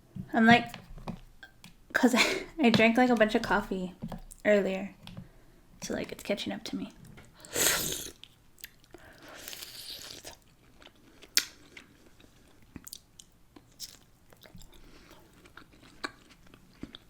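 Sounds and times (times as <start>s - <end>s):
person biting and chewing food: 7.4s - 17.0s.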